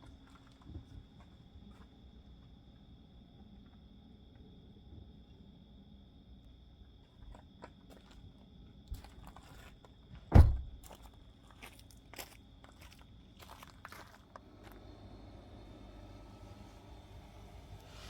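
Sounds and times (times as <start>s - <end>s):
heavy thump: 10.3s - 10.8s
faint high whine: 14.3s - 18.0s.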